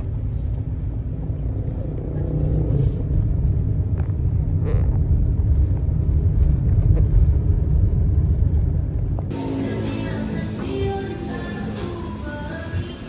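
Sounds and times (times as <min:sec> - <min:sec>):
road vehicle rumble: 0:00.0 - 0:13.0
music: 0:09.3 - 0:13.0.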